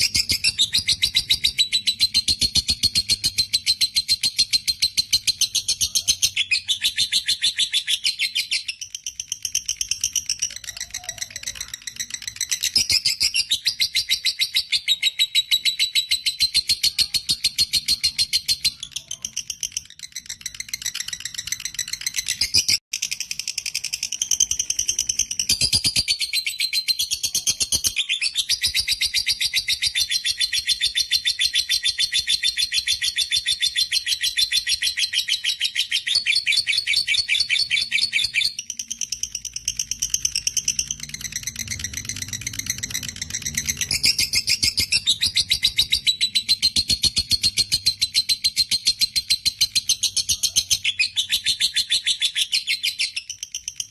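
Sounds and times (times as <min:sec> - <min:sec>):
lovebird shrill chattering trill: 0:00.0 - 0:22.8.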